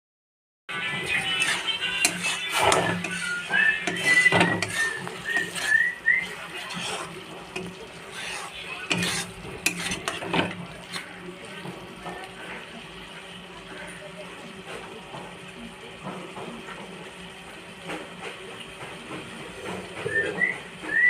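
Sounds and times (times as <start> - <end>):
kitchen utensils clinking and scraping: 0.7 - 12.8.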